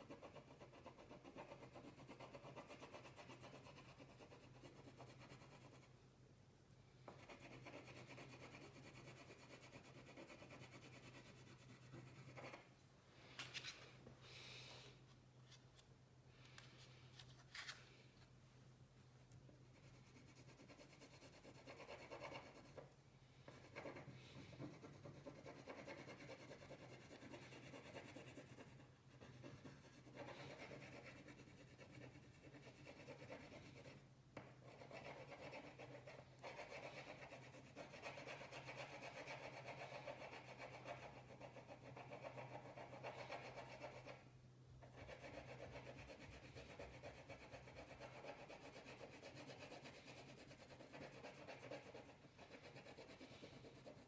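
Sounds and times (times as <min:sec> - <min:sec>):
colouring tool scratching paper: 0:19.7 - 0:22.8, 0:23.5 - 0:34.0, 0:34.7 - 0:44.2, 0:44.9 - 0:54.0.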